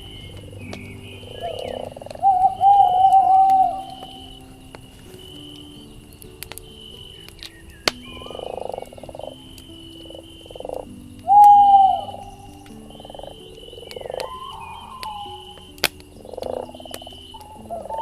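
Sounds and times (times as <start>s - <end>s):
loud downward whistled call: 0.0s - 4.7s, 7.1s - 8.6s, 11.3s - 12.9s, 14.0s - 15.8s, 17.4s - 18.0s
campfire crackling: 0.0s - 18.0s
frogs croaking: 0.0s - 18.0s.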